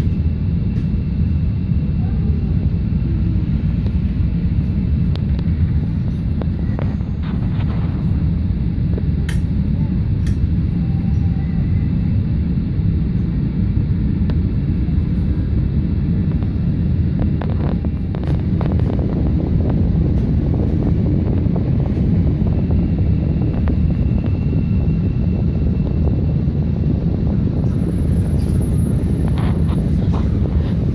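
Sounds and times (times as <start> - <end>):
train rumble: 0.0 - 30.9.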